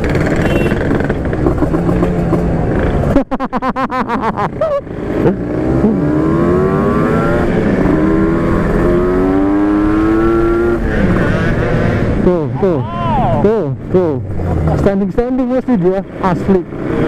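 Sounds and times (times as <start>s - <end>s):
two-stroke motorcycle engine revving: 0.0s - 3.2s, 4.2s - 12.4s, 13.8s - 17.0s
engine stuttering and popping: 0.0s - 9.6s, 13.8s - 17.0s.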